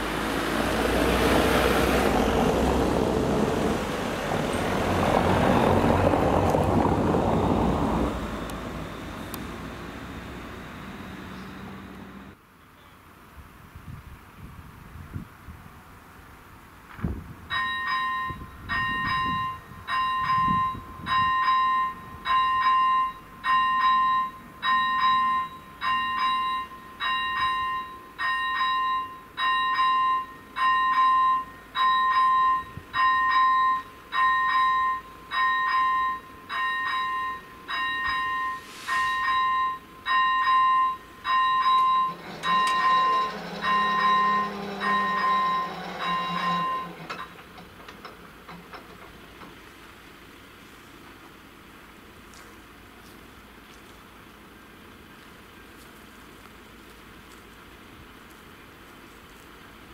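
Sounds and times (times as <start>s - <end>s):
rumble of approaching train: 0.0s - 59.9s
level crossing warning bell: 17.5s - 48.0s.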